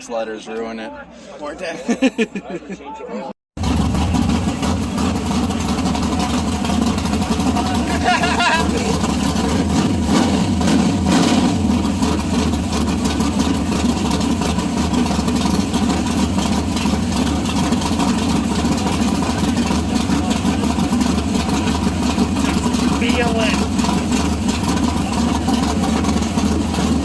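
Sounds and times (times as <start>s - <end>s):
car engine running: 3.6s - 27.0s.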